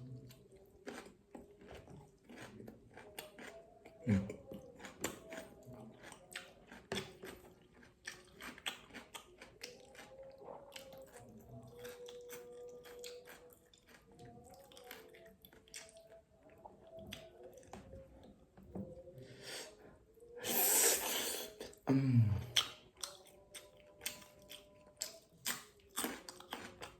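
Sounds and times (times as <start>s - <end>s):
person chewing food: 0.0s - 20.2s, 21.0s - 26.9s.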